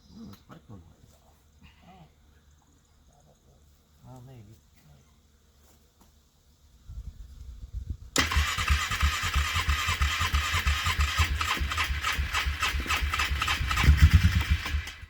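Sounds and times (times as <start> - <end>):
engine cranking on cold start: 8.2 - 15.0.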